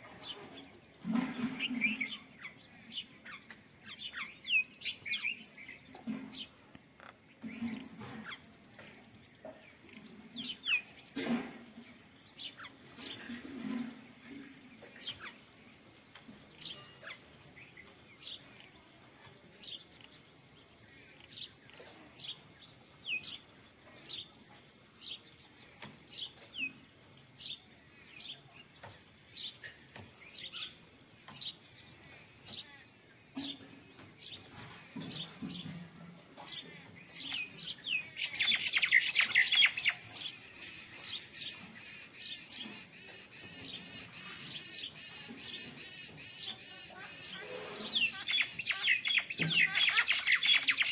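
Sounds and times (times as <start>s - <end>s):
small bird chirping: 36.4s - 50.9s.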